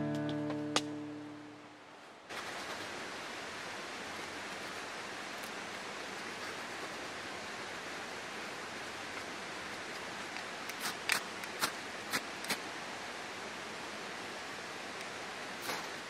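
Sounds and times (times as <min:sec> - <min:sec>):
steady rushing hiss: 0:01.1 - 0:16.0
campfire crackling: 0:02.3 - 0:12.8, 0:14.6 - 0:16.0
sharp pops of fire: 0:15.6 - 0:16.0.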